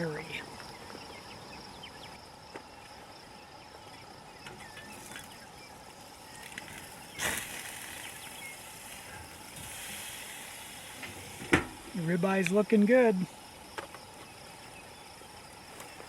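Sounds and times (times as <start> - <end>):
crickets chirring: 0.0 - 16.0
bird chirps: 0.7 - 2.2, 3.4 - 8.8
steak sizzling on grill: 6.0 - 16.0.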